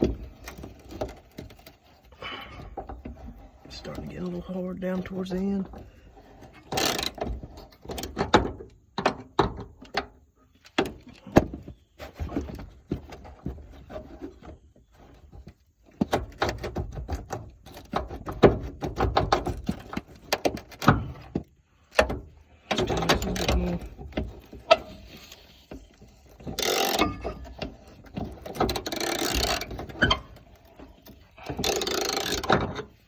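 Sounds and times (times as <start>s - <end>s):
hand ratchet clicking: 26.5s - 27.3s, 28.7s - 30.2s, 31.4s - 32.6s.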